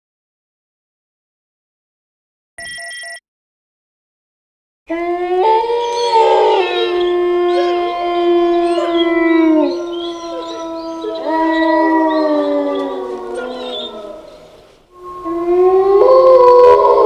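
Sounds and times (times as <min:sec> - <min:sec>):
wolves howling: 0:04.9 - 0:17.0.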